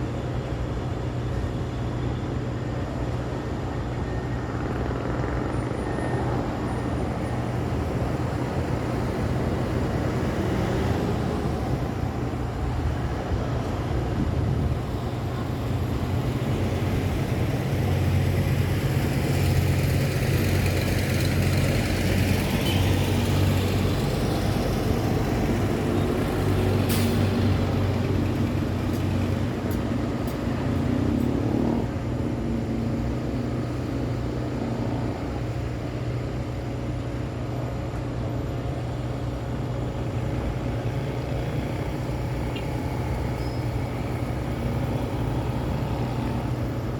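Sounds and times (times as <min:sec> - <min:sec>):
low rumble of heavy engines: 0:00.0 - 0:46.9
road traffic passing: 0:00.0 - 0:46.9.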